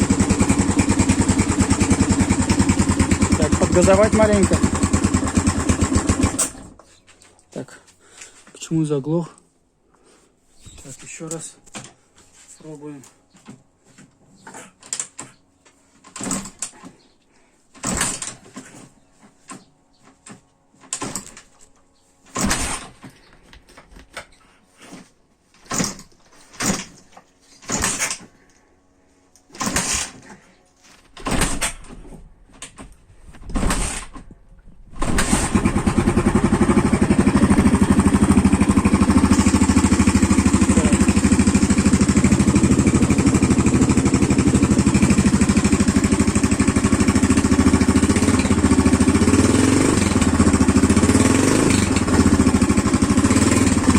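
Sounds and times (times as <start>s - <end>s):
motorcycle engine running: 0.0s - 6.8s, 35.1s - 53.9s
motorcycle kick-start thumps: 0.0s - 6.9s, 16.0s - 17.0s, 17.8s - 21.5s, 25.6s - 28.4s, 29.4s - 30.4s, 31.1s - 53.9s.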